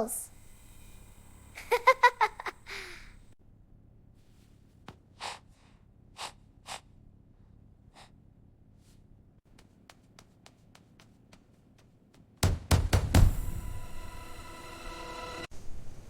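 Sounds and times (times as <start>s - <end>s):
soft breathy puffs: 4.2s - 11.6s.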